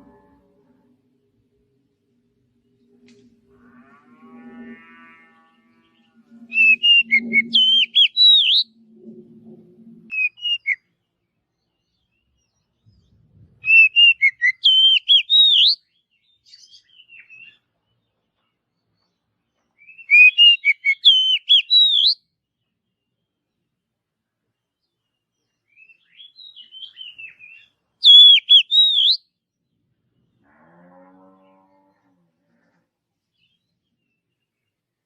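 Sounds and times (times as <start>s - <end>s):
bird calls: 5.9s - 8.6s, 13.6s - 15.8s, 19.8s - 22.2s, 25.7s - 29.2s
bird singing whistled phrases: 6.5s - 8.7s, 10.1s - 10.8s, 13.6s - 15.8s, 19.8s - 22.2s, 25.7s - 29.2s.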